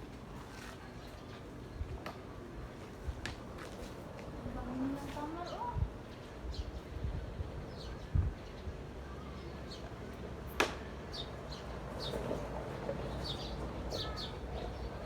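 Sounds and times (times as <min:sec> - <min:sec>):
songbirds chirping: 0:04.5 - 0:15.0.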